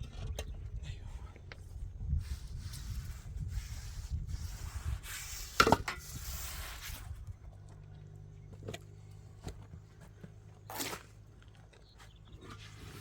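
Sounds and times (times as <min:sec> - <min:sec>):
rushing scraping noise: 0:02.2 - 0:07.2
low motor hum: 0:06.0 - 0:13.0.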